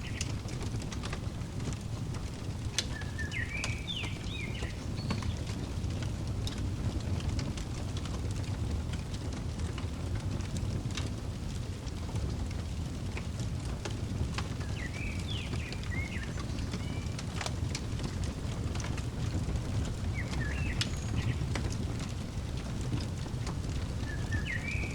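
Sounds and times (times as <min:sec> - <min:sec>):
wood fire crackling: 0:00.0 - 0:24.9
bird chirping: 0:02.8 - 0:05.5, 0:14.6 - 0:17.2, 0:19.8 - 0:22.0, 0:23.9 - 0:24.9.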